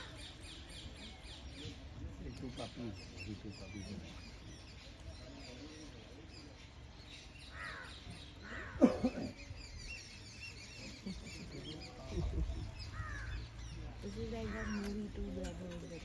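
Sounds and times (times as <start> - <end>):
birds chirping: 0.0 - 16.0
loud falling bird calls: 7.3 - 11.9, 12.8 - 15.2.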